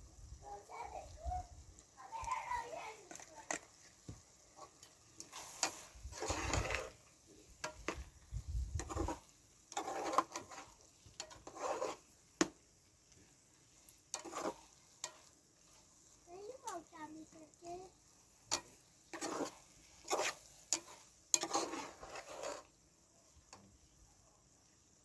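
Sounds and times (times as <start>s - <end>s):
short scraping sounds: 5.2s - 7.0s, 11.4s - 12.0s, 19.2s - 22.7s
utensils and pots clicking: 8.8s - 11.7s.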